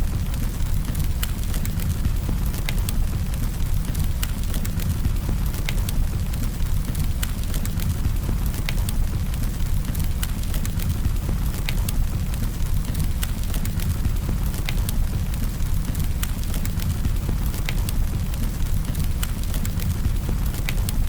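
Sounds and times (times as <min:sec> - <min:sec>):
low rumble of flames: 0:00.0 - 0:21.0
wood crackling and popping: 0:00.0 - 0:21.0.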